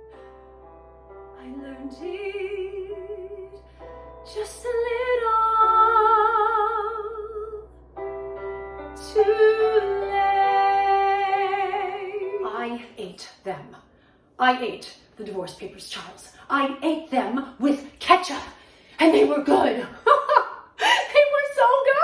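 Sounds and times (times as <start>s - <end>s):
woman singing with vibrato: 4.3s - 7.6s, 9.0s - 13.1s.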